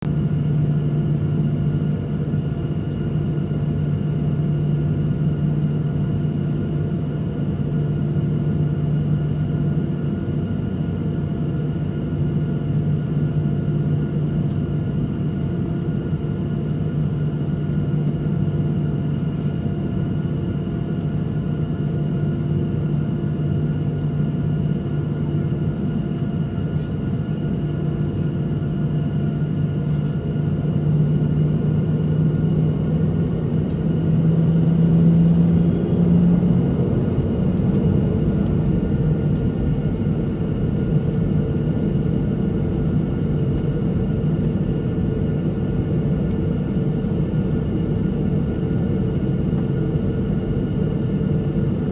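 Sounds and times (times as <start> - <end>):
airliner cabin hum and rumble: 0.0 - 51.9.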